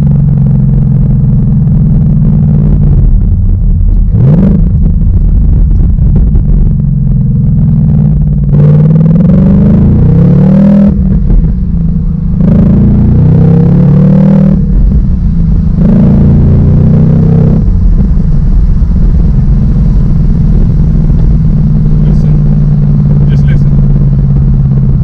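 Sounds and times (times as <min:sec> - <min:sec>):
car engine accelerating hard: 0:00.0 - 0:25.0.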